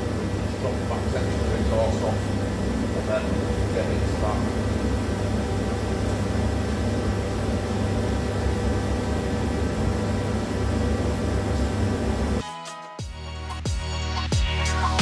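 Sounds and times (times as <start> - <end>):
machine hum with hiss: 0.0 - 12.4
music: 12.4 - 15.0.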